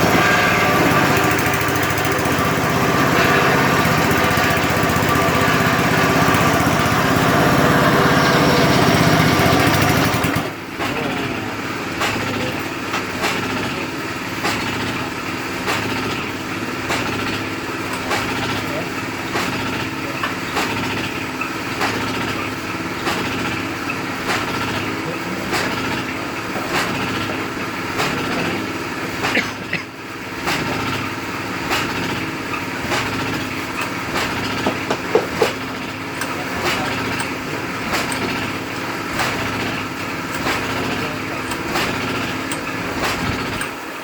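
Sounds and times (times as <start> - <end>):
crushing machine running: 0.0 - 44.0
sharp clacks: 12.0 - 29.5, 30.4 - 31.1, 31.7 - 43.8.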